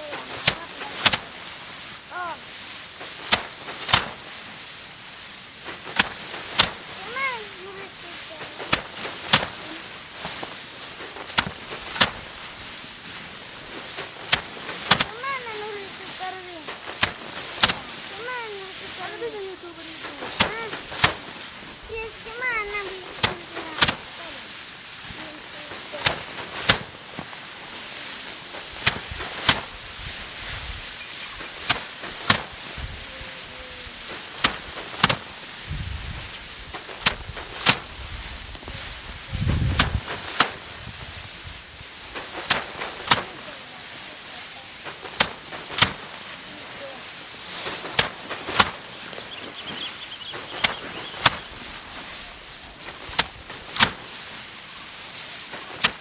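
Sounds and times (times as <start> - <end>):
rice sheaves striking threshing board: 0.0 - 56.0
steady outdoor hiss: 0.0 - 56.0
sharp knocks of harvest work: 0.4 - 1.4, 3.0 - 4.3, 5.6 - 7.6, 8.2 - 19.3, 20.0 - 33.0, 34.0 - 35.4, 36.1 - 38.8, 39.7 - 41.4, 42.2 - 43.4, 44.3 - 46.2, 47.1 - 52.2, 52.8 - 54.2, 55.6 - 56.0
short wavering call: 48.8 - 51.6.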